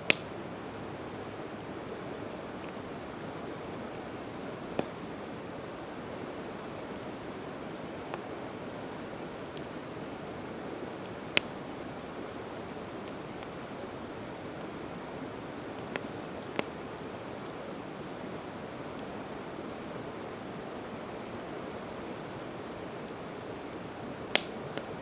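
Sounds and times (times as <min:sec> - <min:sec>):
insect chirping: 0:10.2 - 0:17.7
thin high buzz: 0:10.2 - 0:17.7
sharp pops from fire: 0:10.9 - 0:13.6, 0:15.8 - 0:16.8.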